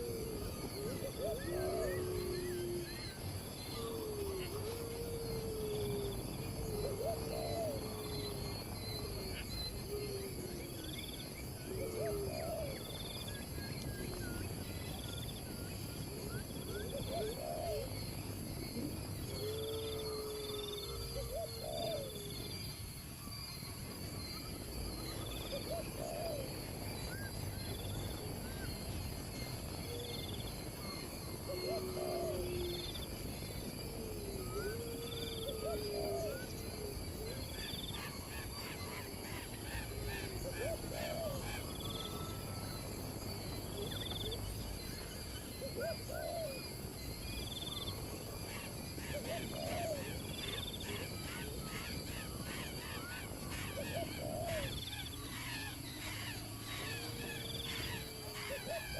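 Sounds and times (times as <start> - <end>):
insects droning: 0.0 - 58.9.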